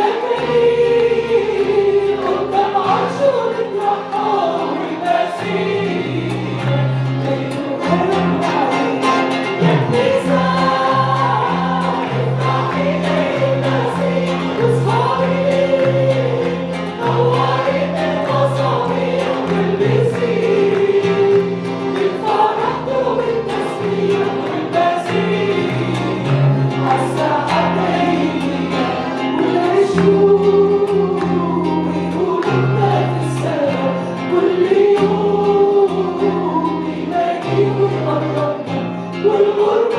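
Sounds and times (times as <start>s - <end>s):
instrumental accompaniment: 0.0s - 36.1s
congregation singing a hymn: 0.0s - 39.9s
bass line: 9.5s - 12.6s.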